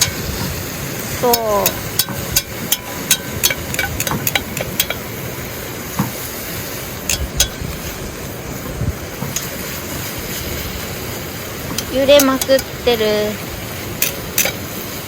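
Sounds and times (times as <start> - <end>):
campfire pops and crackles: 0.0 - 15.0
food sizzling: 0.0 - 15.0.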